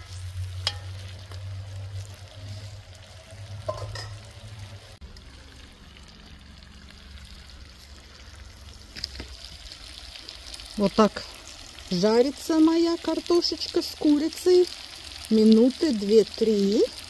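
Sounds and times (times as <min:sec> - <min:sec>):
metal ladle stirring: 0:00.0 - 0:02.8
food sizzling in pot: 0:00.0 - 0:17.0.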